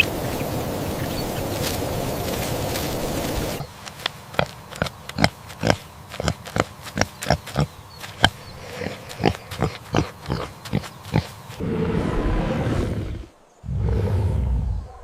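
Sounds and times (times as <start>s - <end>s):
pigs grunting: 3.5s - 15.0s.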